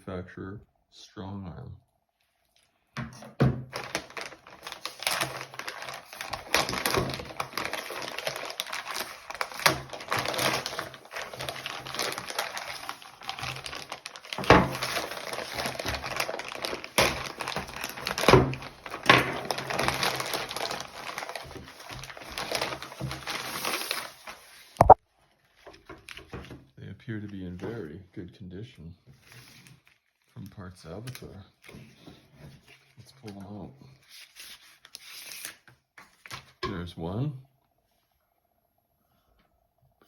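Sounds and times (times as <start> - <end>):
packaging crinkling and rustling: 3.2 - 26.7, 29.2 - 36.6
packaging cracking: 3.7 - 24.4.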